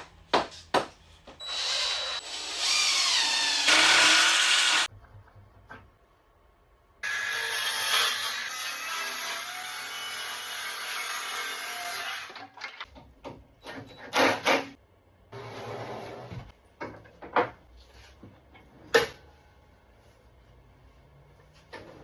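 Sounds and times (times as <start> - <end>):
power tool running: 1.4 - 4.9.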